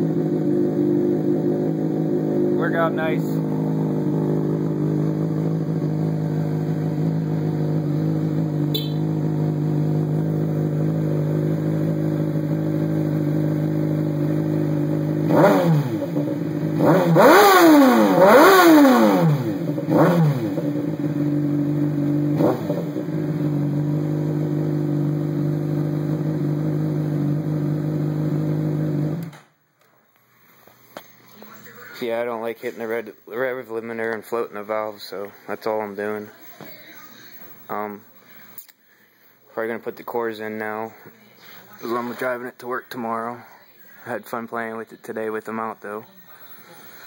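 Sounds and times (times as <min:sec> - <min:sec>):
motorcycle engine idling and revving: 0:00.0 - 0:29.5.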